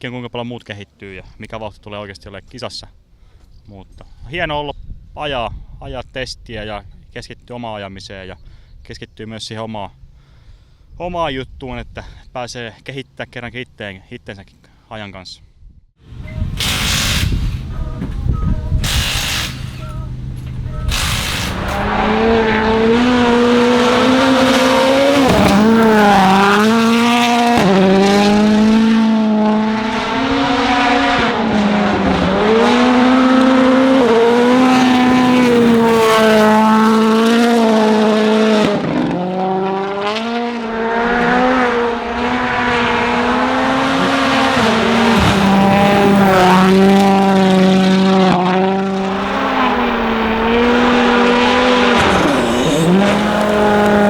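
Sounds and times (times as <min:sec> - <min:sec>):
rally car engine at full throttle: 0:16.1 - 0:54.0.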